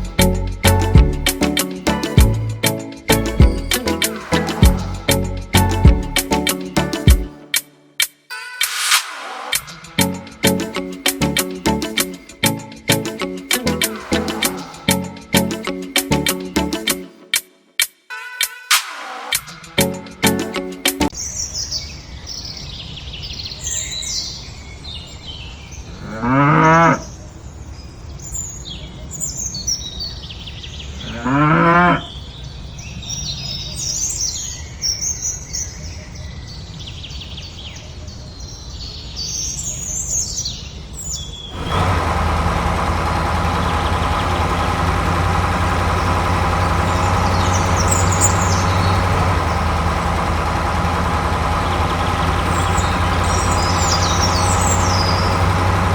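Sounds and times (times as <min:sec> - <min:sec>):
engine idling: 0:00.0 - 0:07.2, 0:10.0 - 0:16.7, 0:41.6 - 0:55.9
cow mooing: 0:26.0 - 0:27.0, 0:31.0 - 0:32.1
small birds chirping: 0:32.1 - 0:55.9.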